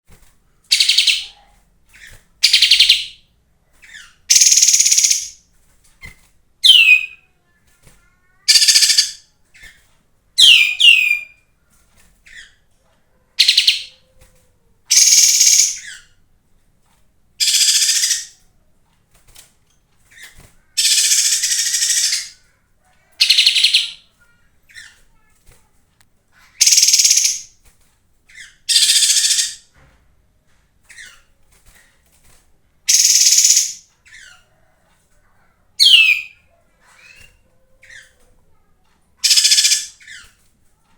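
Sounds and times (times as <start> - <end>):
bird singing high trills: 4.3 - 5.4, 6.6 - 7.2, 10.4 - 11.4, 14.9 - 16.0, 17.4 - 18.3, 26.6 - 27.5, 32.9 - 33.8, 35.8 - 36.4.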